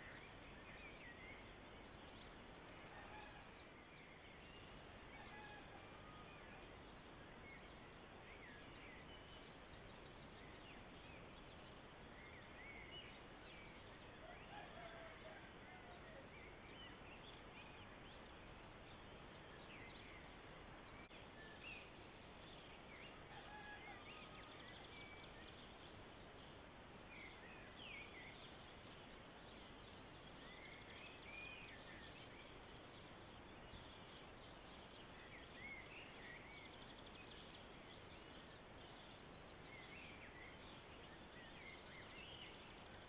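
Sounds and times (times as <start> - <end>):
steady hiss: 0.0 - 14.4, 24.0 - 43.0
small birds chirping: 0.0 - 43.0.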